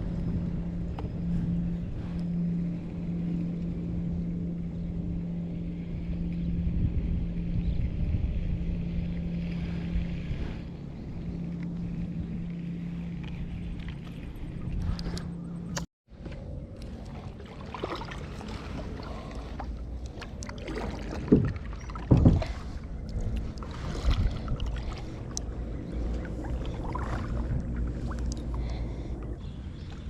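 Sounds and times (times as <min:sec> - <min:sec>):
water washing along hull: 0:00.0 - 0:30.0
paddle strokes: 0:08.9 - 0:30.0.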